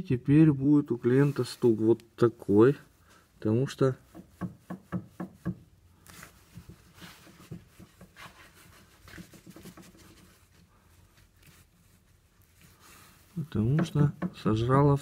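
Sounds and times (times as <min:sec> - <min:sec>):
faint clicking and rubbing: 0:04.0 - 0:14.3.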